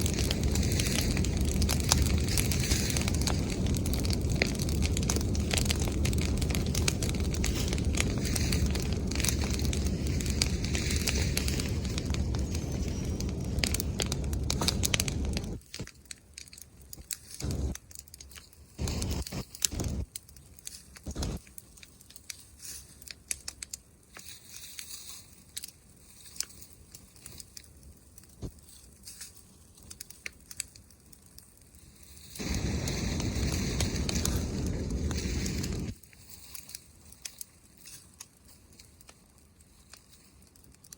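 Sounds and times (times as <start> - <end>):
bonfire crackling and popping: 0.0 - 40.9
even rushing noise: 32.4 - 35.9.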